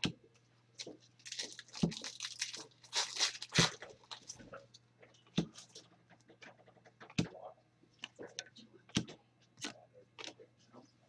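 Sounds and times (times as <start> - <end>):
plastic wrapper crinkling and tearing: 1.2 - 4.4.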